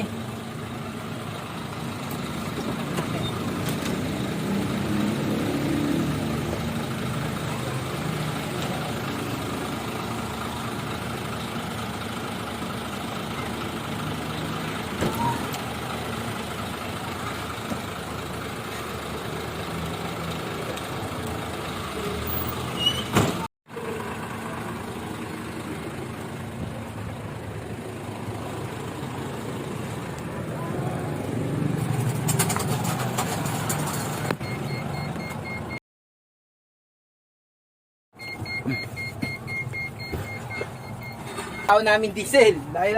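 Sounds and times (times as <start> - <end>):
truck diesel engine running: 0.0 - 23.0, 23.7 - 35.8.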